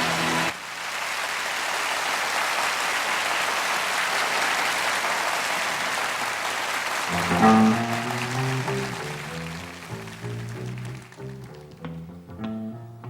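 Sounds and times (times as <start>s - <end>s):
audience applauding: 0.0s - 11.8s
band holding final chord: 7.1s - 9.6s.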